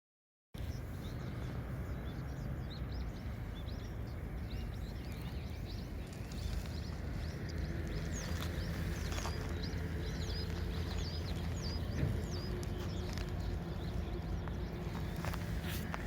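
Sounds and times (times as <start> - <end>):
small birds chirping: 0.6 - 16.0.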